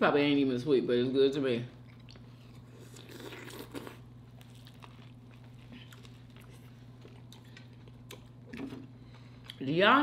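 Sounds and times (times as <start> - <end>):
steady low hum: 0.0 - 10.0
chewing food: 1.8 - 9.6.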